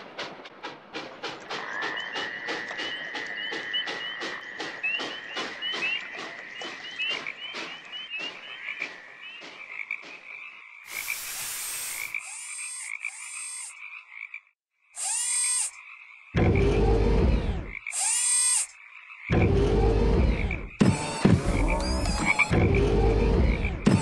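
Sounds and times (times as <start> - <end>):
frogs croaking: 1.5 - 16.8, 17.5 - 19.6
steam hiss: 10.9 - 13.6.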